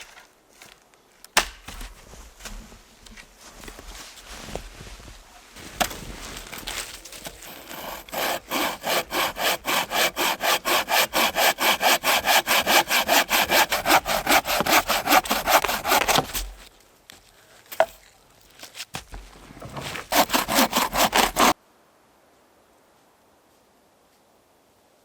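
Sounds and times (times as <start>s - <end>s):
hand saw cutting wood: 7.2s - 16.7s, 19.6s - 21.6s.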